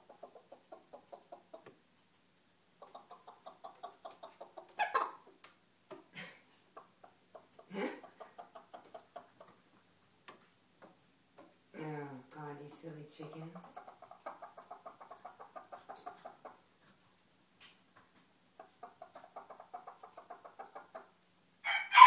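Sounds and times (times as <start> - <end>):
rooster clucking: 2.8 - 5.3, 6.8 - 9.5, 13.2 - 16.6, 18.6 - 21.1
rooster sharp calls: 21.6 - 22.0.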